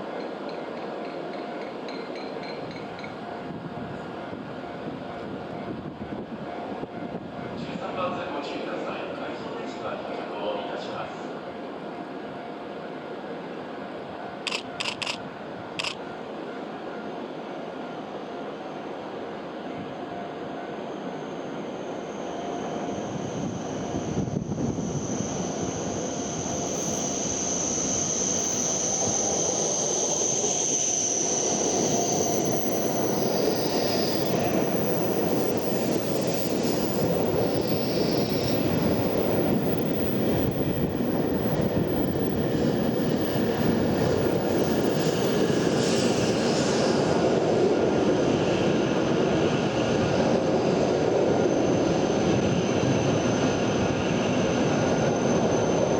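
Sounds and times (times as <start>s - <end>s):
high-speed train rushing: 0.0s - 55.9s
thin high whine: 14.4s - 16.1s, 19.8s - 47.6s.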